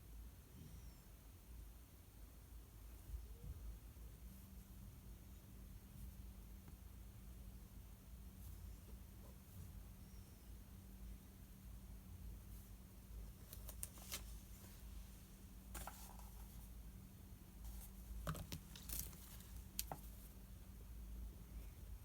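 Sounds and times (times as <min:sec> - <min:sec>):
faint steady hum: 0:00.0 - 0:22.0
paper rustling: 0:13.4 - 0:16.7, 0:17.7 - 0:20.3.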